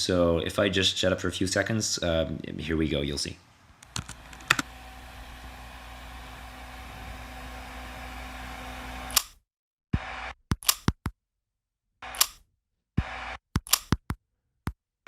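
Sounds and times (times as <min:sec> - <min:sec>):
fans running: 0:03.8 - 0:09.2
sharp clicks: 0:09.1 - 0:09.4, 0:10.5 - 0:11.1, 0:12.0 - 0:12.4, 0:13.6 - 0:14.2.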